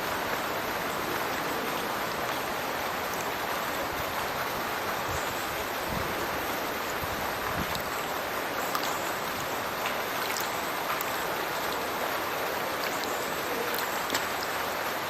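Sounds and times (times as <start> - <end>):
water rushing from culvert: 0.0 - 15.0
droplet splashes: 8.6 - 11.9, 12.6 - 14.6.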